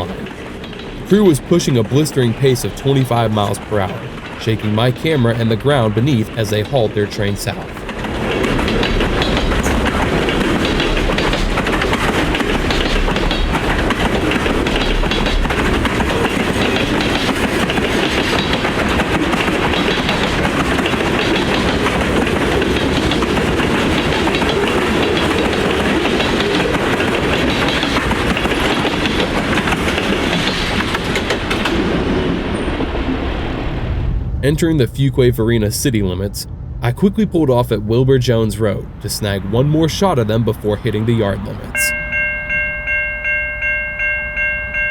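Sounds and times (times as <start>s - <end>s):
freight car wheels clickety-clack: 0.0s - 33.7s.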